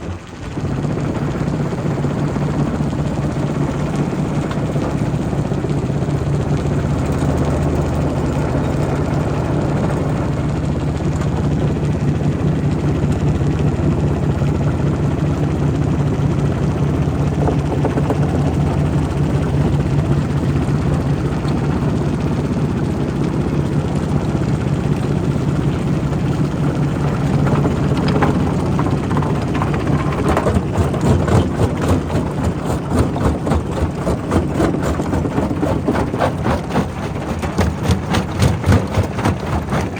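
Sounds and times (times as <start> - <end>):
rock crusher droning: 0.0 - 39.9
rapid clatter of impacts: 16.6 - 39.9.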